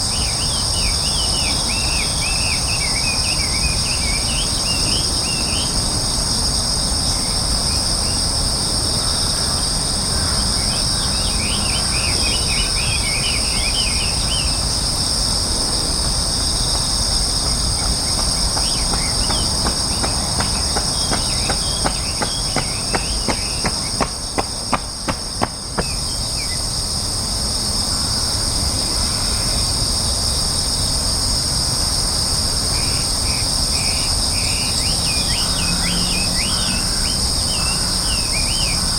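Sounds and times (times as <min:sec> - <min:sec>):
insects buzzing: 0:00.0 - 0:38.9
sharp taps: 0:17.4 - 0:26.0.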